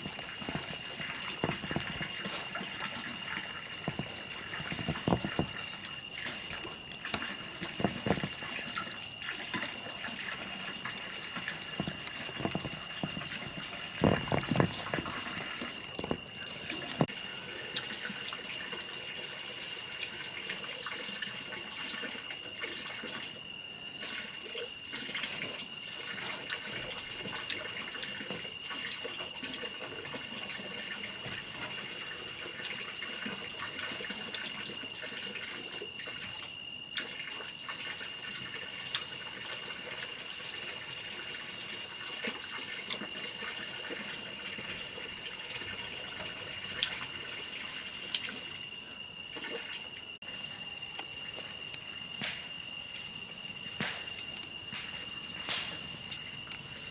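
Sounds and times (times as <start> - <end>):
water running and splashing: 0.0 - 23.2
knocks: 3.9 - 5.6, 11.8 - 16.2.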